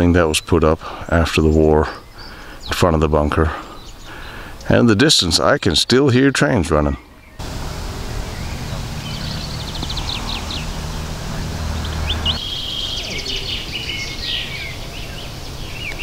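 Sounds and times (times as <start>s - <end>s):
songbirds chirping and trilling: 0.0s - 16.0s
steady low rumble: 7.4s - 12.4s.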